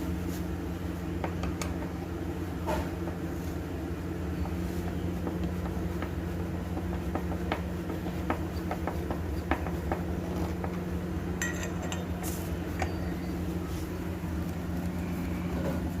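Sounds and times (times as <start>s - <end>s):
low background hum: 0.0s - 16.0s
metallic clinks of tools: 11.4s - 12.9s.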